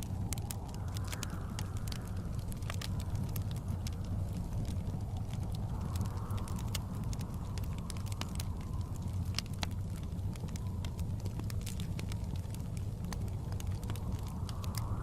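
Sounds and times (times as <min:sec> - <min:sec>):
blizzard wind rumbling: 0:00.0 - 0:15.0
wood fire crackling and popping: 0:00.0 - 0:15.0.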